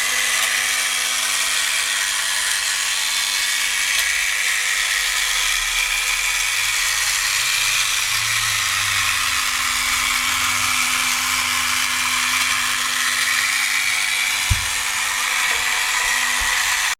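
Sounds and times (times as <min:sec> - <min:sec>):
small motor whirring: 0:00.0 - 0:16.9
sharp knock: 0:14.5 - 0:14.8.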